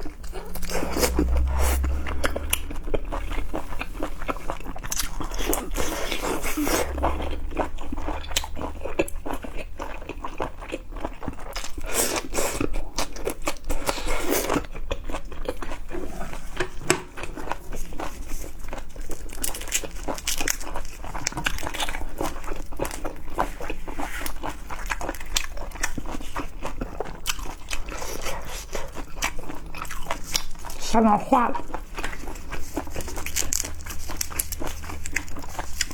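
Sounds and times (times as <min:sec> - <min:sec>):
chewing with wet clicks and crunches: 0:00.0 - 0:35.9.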